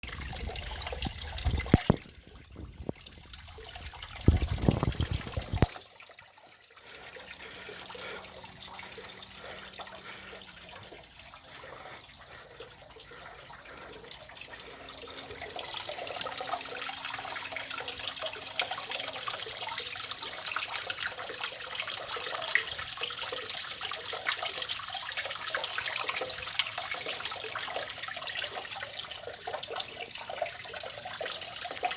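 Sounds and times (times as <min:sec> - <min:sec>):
water running and trickling: 0:00.0 - 0:31.9.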